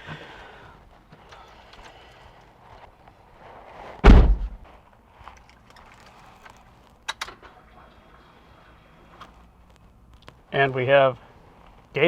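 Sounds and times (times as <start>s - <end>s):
car door slamming: 4.0s - 4.6s.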